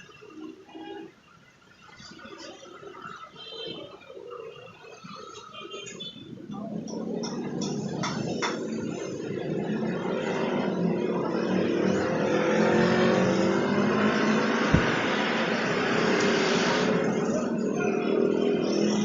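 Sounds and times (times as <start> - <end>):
vehicle engine running: 12.6 - 16.2
soft thump: 14.7 - 15.2.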